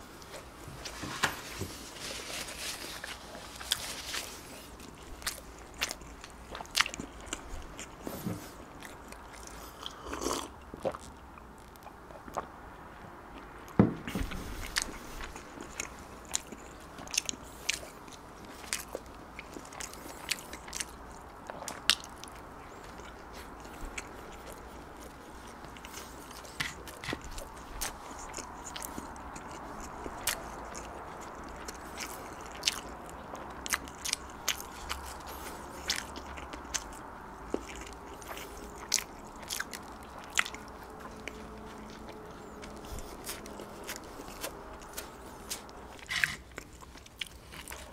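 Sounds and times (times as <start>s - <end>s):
chewing soft bread: 0.0s - 47.9s
loud thump: 13.8s - 14.4s.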